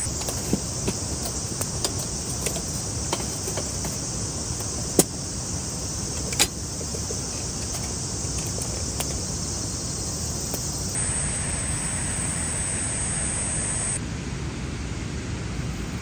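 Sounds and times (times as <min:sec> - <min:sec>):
campfire crackling: 0:00.0 - 0:11.9
insects buzzing: 0:00.0 - 0:14.0.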